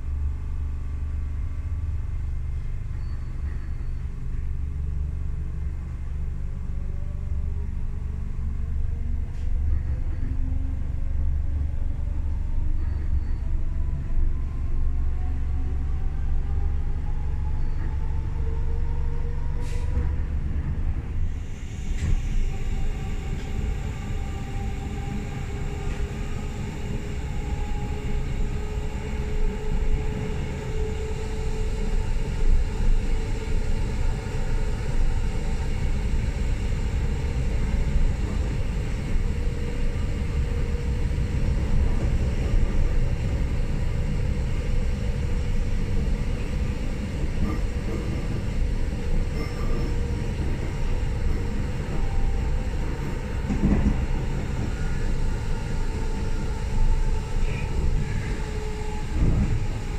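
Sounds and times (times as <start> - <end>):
train wheels rumbling: 7.6 - 59.9.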